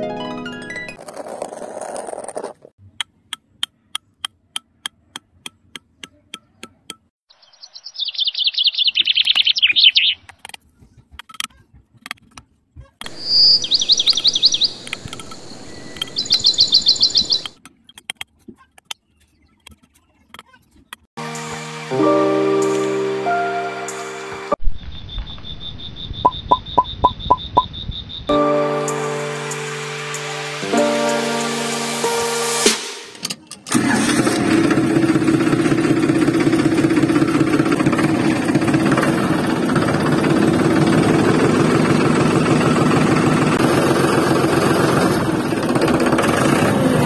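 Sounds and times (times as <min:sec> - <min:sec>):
bird high-pitched chirping trills: 0:07.3 - 0:10.3, 0:13.1 - 0:17.6, 0:24.8 - 0:28.6
bird sharp clicks: 0:13.3 - 0:17.6.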